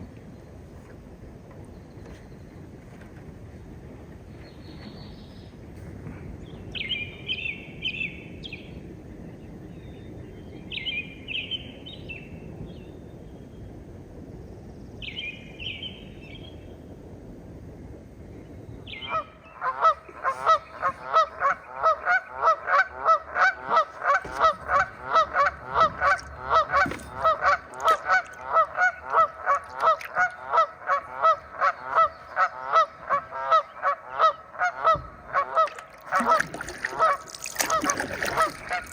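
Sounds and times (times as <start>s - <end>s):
birds honking: 19.0s - 38.9s.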